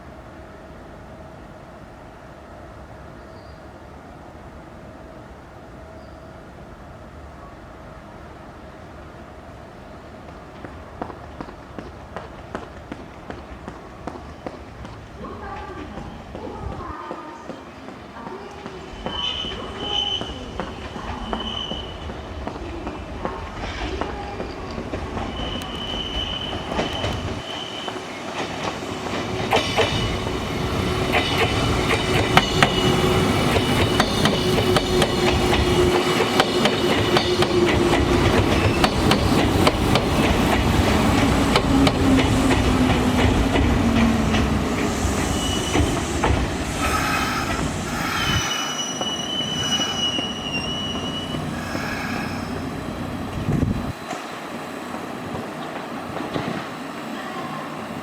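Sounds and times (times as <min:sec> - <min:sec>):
train wheels clicking over rail joints: 0:10.2 - 0:19.6, 0:20.2 - 0:48.3, 0:54.0 - 0:56.8
high wheel squeal: 0:19.0 - 0:22.1, 0:25.2 - 0:28.2, 0:45.0 - 0:52.7.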